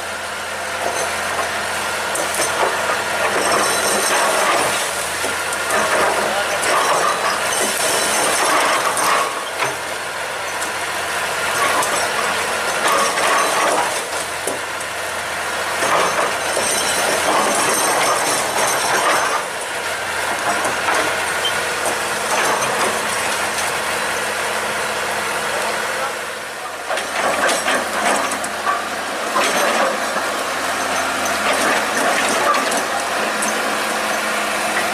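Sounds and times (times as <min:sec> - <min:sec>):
excavator engine under load: 0:00.0 - 0:34.9
high machine squeal: 0:21.4 - 0:21.8.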